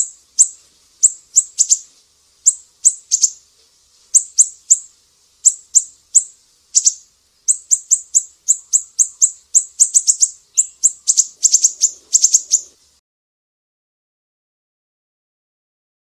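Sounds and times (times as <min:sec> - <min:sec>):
bird calling sharp chips: 0:00.0 - 0:01.9, 0:02.5 - 0:03.4, 0:04.1 - 0:04.8, 0:05.5 - 0:12.8.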